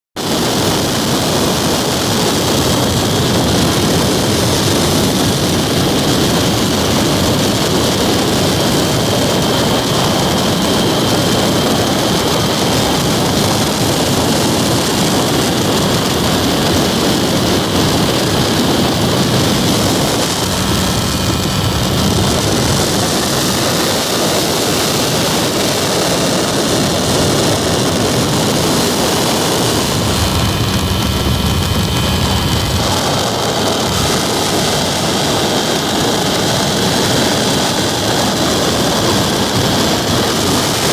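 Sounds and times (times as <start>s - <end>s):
small airplane engine droning: 0.2s - 40.9s
low hum: 0.3s - 40.9s.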